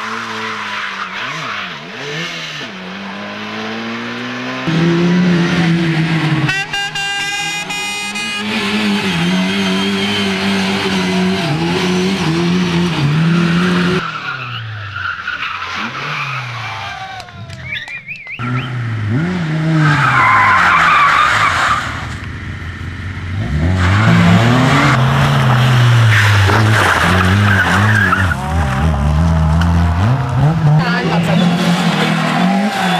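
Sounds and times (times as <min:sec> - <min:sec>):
rally car engines revving: 0:00.0 - 0:32.9.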